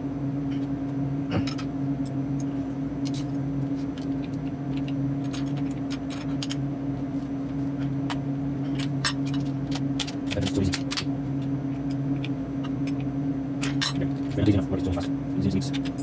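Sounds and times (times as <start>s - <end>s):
freezer compressor humming: 0.0s - 16.0s
small parts clicking and tapping: 8.7s - 11.1s.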